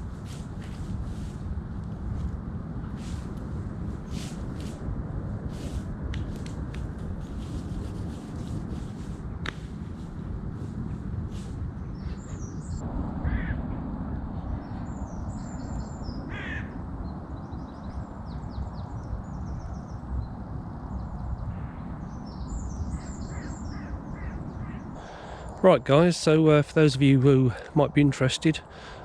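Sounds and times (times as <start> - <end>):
steady low rumble: 0.0 - 29.0
small birds chirping: 11.9 - 12.8, 17.1 - 25.6
crows cawing: 13.2 - 13.6, 16.3 - 16.8.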